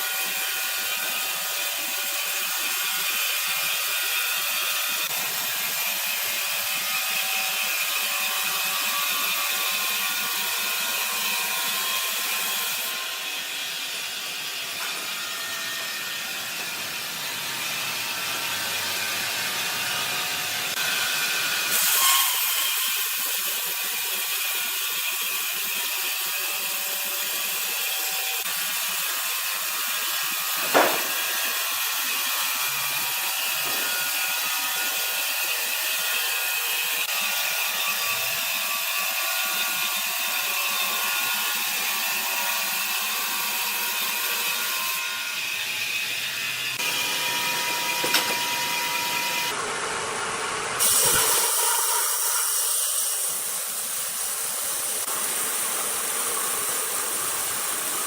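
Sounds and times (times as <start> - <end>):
saw cutting wood: 0.0 - 58.0
sharp knock: 30.6 - 31.2.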